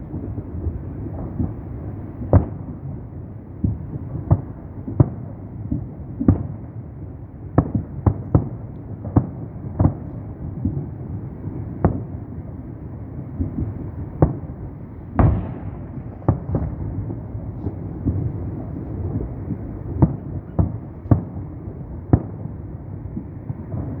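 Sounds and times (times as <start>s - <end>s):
steady rolling rumble: 11.0s - 24.0s
firework shells booming: 13.4s - 22.6s.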